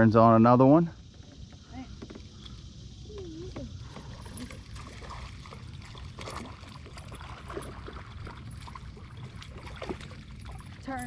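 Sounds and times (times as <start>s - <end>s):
water splashing around a boat: 1.1s - 11.0s.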